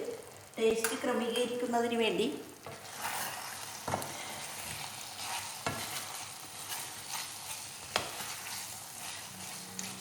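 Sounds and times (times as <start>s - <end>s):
chicken sizzling in a pan: 1.9s - 10.0s
spatula stirring: 2.6s - 10.0s.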